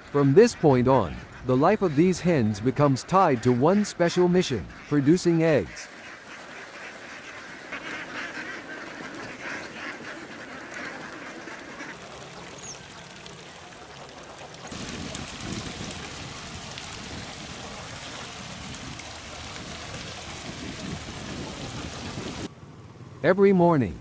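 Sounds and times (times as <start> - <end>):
ducks quacking: 0.0 - 22.5
rushing noise with low rumble: 14.7 - 22.5.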